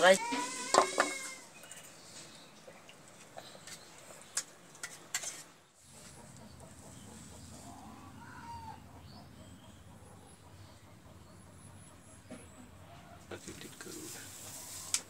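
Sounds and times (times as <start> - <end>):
faint bird calls: 5.9 - 13.3.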